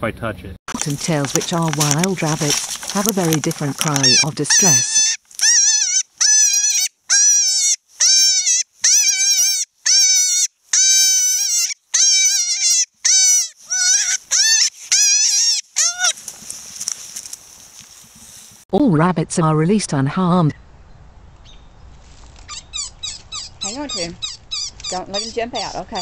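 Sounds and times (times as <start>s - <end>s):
rabbit screaming: 3.9s - 16.2s.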